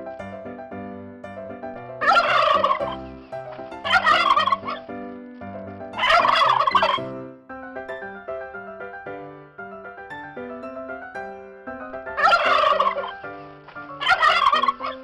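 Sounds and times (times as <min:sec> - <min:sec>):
keyboard music: 0:00.0 - 0:15.0
turkey gobbling: 0:02.0 - 0:03.0, 0:03.8 - 0:04.8, 0:06.0 - 0:07.0, 0:12.2 - 0:13.2, 0:14.0 - 0:15.0.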